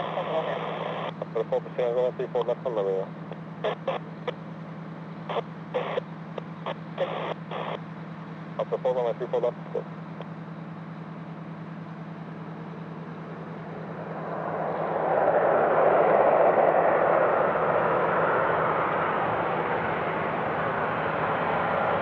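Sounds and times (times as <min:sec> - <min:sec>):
jet engines passing: 0:00.0 - 0:07.8, 0:08.4 - 0:22.0
steady low hum: 0:00.0 - 0:22.0.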